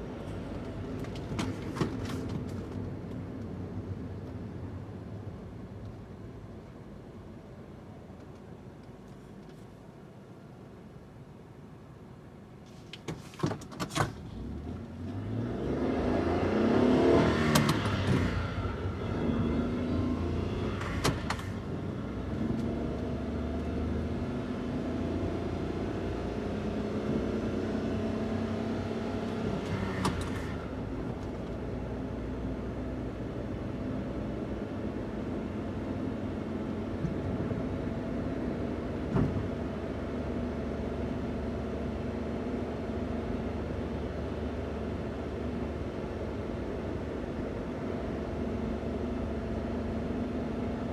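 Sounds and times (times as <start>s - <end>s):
van engine revving: 13.9s - 31.2s.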